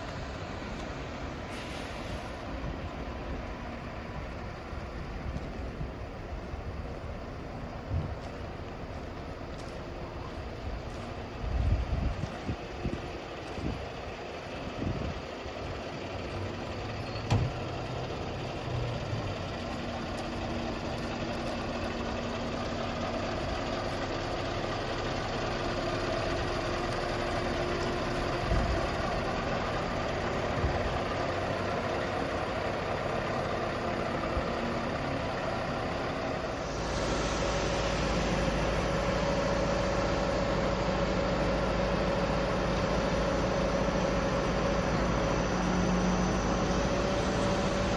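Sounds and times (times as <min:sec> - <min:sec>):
truck diesel engine running: 0:00.0 - 0:47.9.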